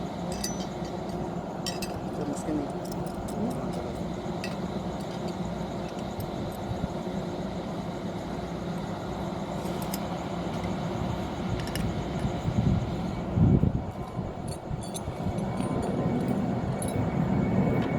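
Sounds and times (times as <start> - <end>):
machinery humming: 0.0 - 17.9.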